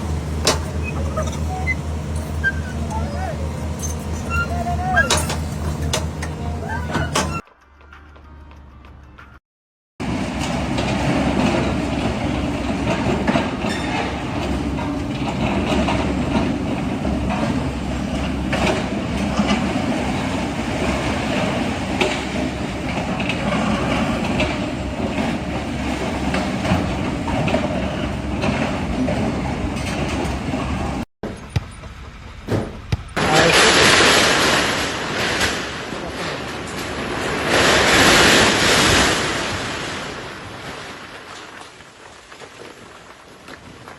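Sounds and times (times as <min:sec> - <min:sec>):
heavy mechanical rumble: 0:00.0 - 0:07.4, 0:10.0 - 0:40.4
clanks and rattles: 0:00.0 - 0:07.5.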